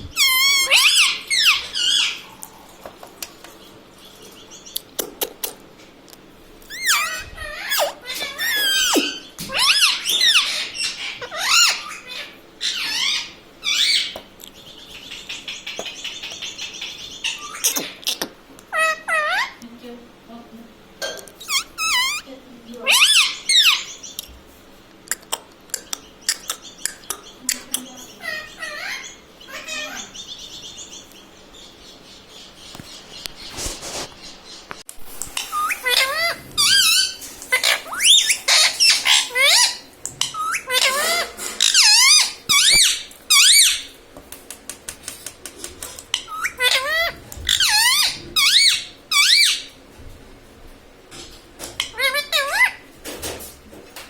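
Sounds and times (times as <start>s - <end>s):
parakeet chirping: 0.0s - 2.4s, 6.7s - 19.6s, 21.4s - 24.3s, 25.7s - 33.5s, 35.3s - 44.0s, 46.1s - 49.8s, 51.8s - 52.8s
parrot calling: 0.0s - 2.7s, 6.7s - 19.6s, 21.4s - 24.3s, 25.1s - 31.5s, 35.3s - 44.0s, 45.8s - 49.8s, 51.8s - 52.8s.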